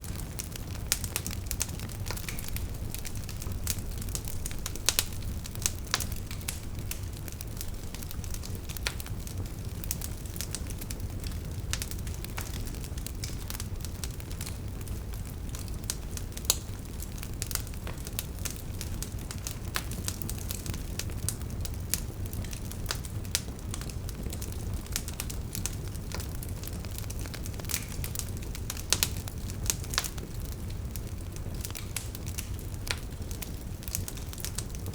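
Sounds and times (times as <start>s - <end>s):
low rumble of flames: 0.0s - 34.9s
logs popping and snapping: 2.0s - 8.1s.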